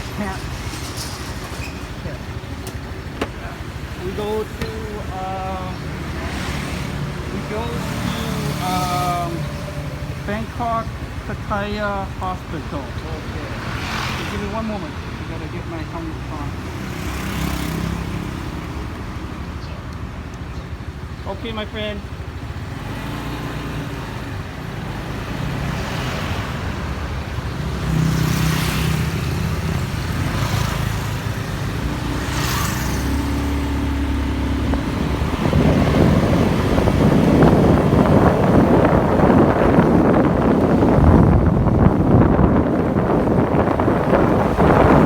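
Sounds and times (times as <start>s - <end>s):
motorbike engine accelerating: 0.0s - 15.4s, 22.3s - 45.0s
vehicles passing: 0.0s - 45.0s
wind buffeting microphone: 23.8s - 45.0s.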